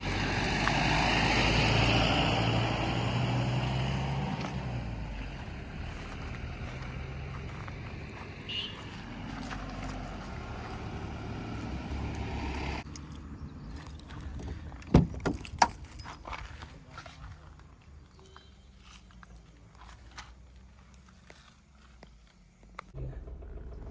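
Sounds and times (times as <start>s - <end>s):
car engine humming: 0.0s - 16.0s, 17.8s - 23.9s
tyre and road noise: 0.0s - 23.9s.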